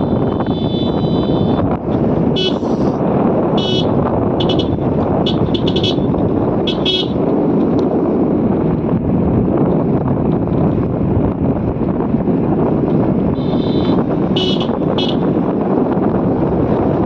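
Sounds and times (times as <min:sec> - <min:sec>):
vehicle horn beeping: 0:00.0 - 0:01.6, 0:02.3 - 0:02.9, 0:03.6 - 0:07.2, 0:13.4 - 0:15.4
motorcycle engine noise: 0:00.0 - 0:17.0
wind rushing: 0:00.0 - 0:17.0.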